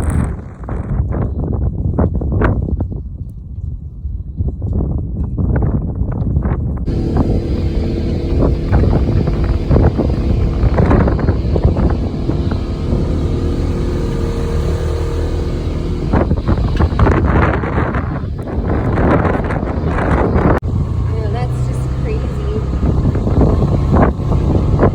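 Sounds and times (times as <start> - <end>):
wind buffeting microphone: 0.0 - 24.9
off-road vehicle engine running: 6.9 - 24.9.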